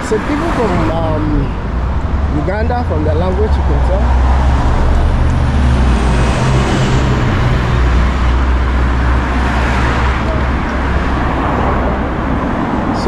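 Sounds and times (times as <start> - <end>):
road traffic rumble: 0.0 - 13.0
vehicle passing: 0.0 - 13.0.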